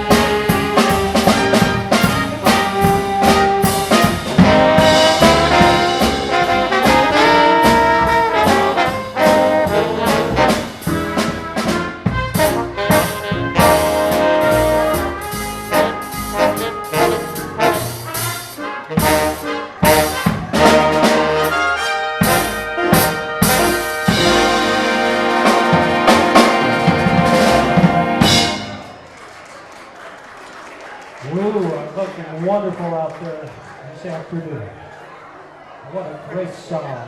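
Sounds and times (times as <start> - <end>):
brass chord hits: 0.0 - 29.0
big band playing swing music: 0.0 - 29.7.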